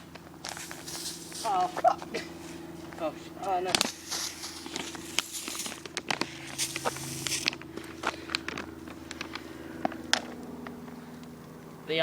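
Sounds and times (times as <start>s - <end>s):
footsteps: 0.0s - 11.0s
hissing spray from bottle: 0.5s - 1.7s, 3.8s - 5.8s, 6.4s - 7.5s.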